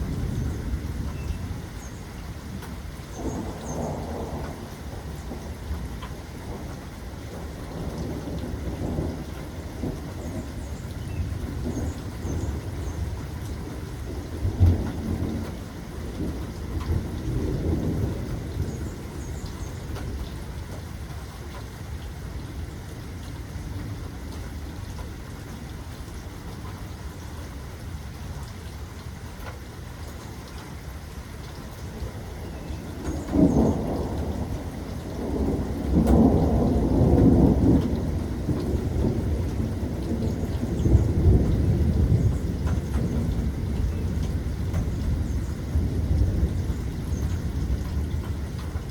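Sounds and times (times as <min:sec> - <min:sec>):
thunder rumbling: 0:00.0 - 0:21.7, 0:31.7 - 0:48.9
steady rainfall: 0:00.0 - 0:48.9
loud thunderclap: 0:03.1 - 0:05.6, 0:07.3 - 0:10.7, 0:11.3 - 0:19.3, 0:32.9 - 0:48.9.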